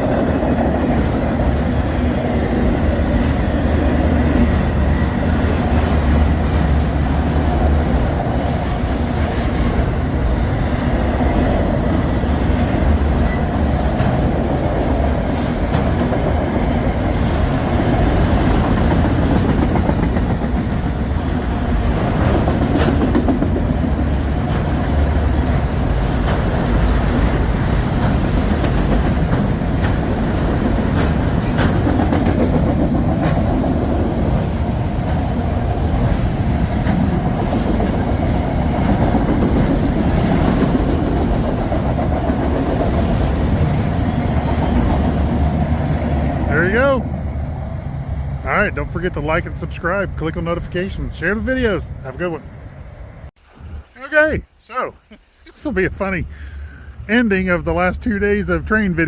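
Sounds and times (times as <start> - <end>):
freight train rumbling past: 0.0 - 54.2
wheels clattering over rails: 11.7 - 47.0.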